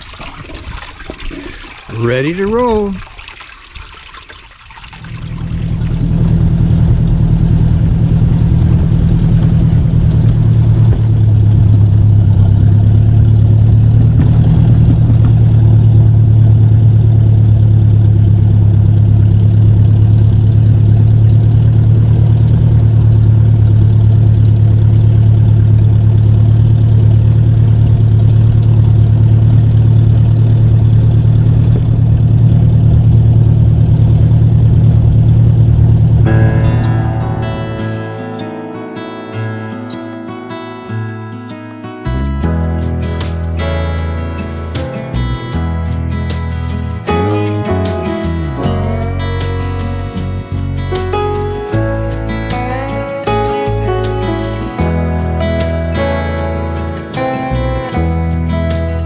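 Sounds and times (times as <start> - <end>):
tractor engine running: 5.0 - 39.1, 42.1 - 59.0.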